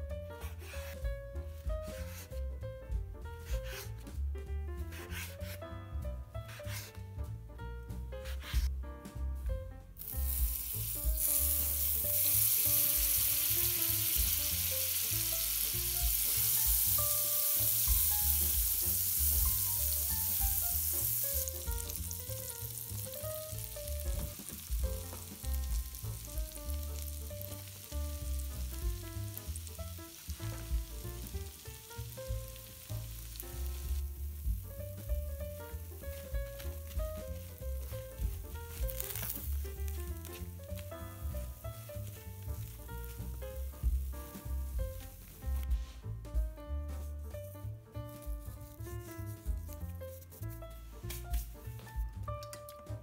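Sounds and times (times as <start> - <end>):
soft background music: 0.0 - 53.0
knife cutting bread on board: 3.4 - 3.9, 4.9 - 5.6, 6.5 - 7.0, 8.2 - 8.7
bread frying in hot oil: 10.0 - 45.7.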